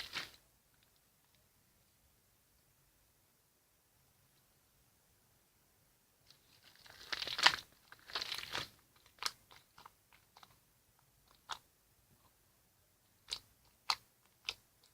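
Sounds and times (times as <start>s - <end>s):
slime squishing: 0.0s - 0.4s, 6.6s - 10.6s, 13.2s - 14.9s.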